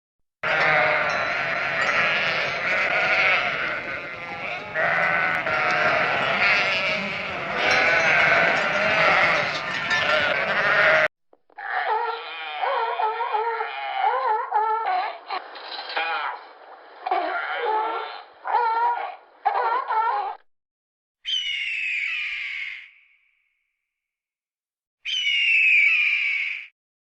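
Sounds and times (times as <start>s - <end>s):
sheep bleating: 0.4s - 14.2s.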